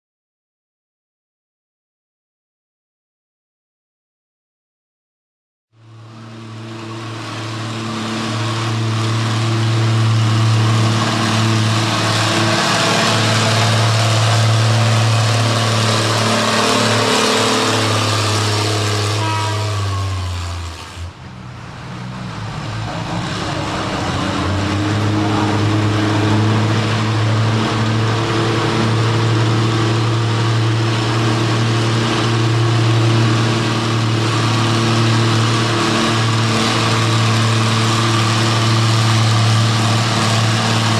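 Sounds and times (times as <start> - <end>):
tractor engines running hard: 5.8 - 40.9.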